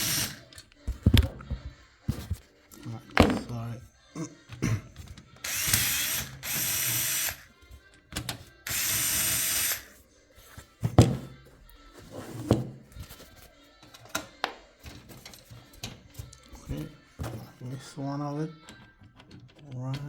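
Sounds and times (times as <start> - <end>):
electric screwdriver running: 0.0 - 0.4, 5.4 - 7.5, 8.6 - 9.9.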